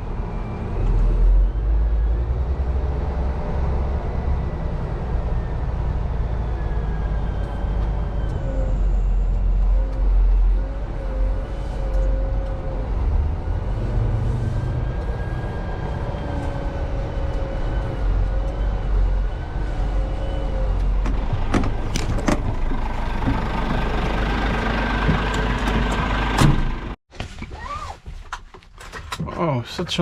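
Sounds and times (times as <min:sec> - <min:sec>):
lorry engine rumbling: 0:00.0 - 0:27.0
sharp clicks and knocks: 0:20.8 - 0:23.8.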